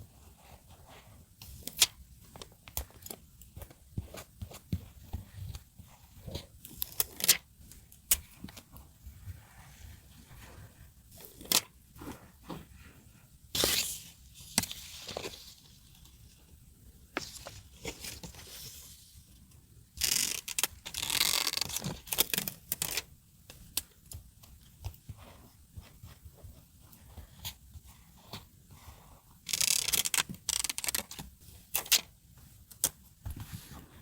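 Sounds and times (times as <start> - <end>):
tape tearing: 29.5 - 31.2.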